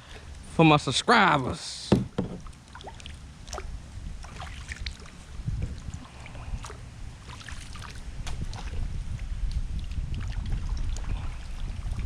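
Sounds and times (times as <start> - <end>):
water lapping around kayak hull: 2.0 - 12.0
small splashes: 2.4 - 12.0
low wind rumble on microphone: 3.2 - 12.0.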